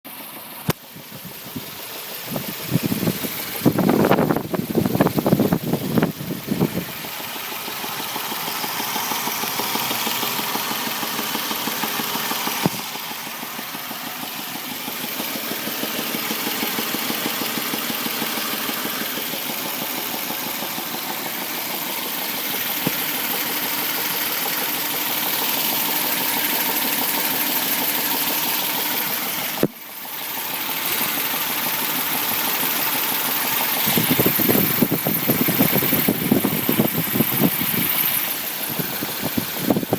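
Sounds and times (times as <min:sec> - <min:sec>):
engine idling with knock: 0:00.1 - 0:39.9.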